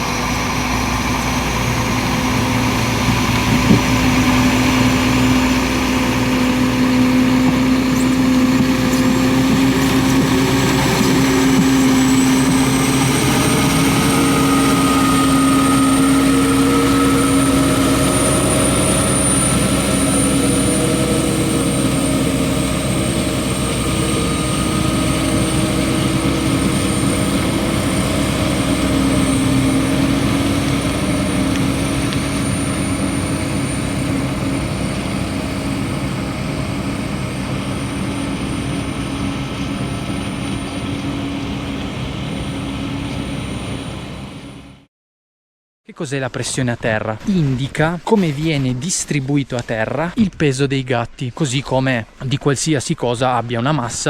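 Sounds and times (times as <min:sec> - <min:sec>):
high turbo whistle: 0:00.0 - 0:41.3
diesel engine running under load: 0:00.0 - 0:44.9
hydraulic pump whine: 0:00.0 - 0:44.9.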